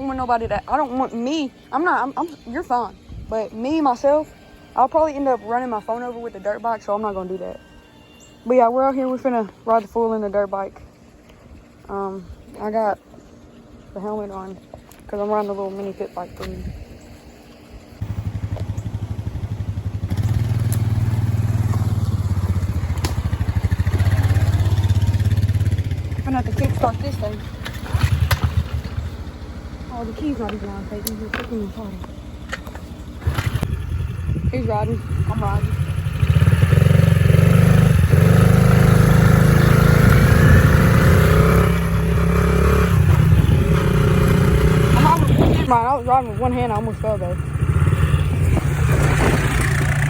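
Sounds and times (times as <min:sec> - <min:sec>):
small motorcycle engine idling: 0:18.0 - 0:50.0.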